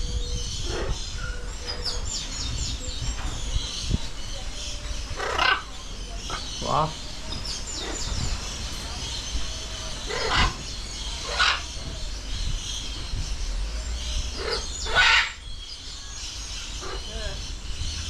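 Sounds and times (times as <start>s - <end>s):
macaws squawking: 5.1s - 7.0s, 10.0s - 11.9s, 14.3s - 15.4s.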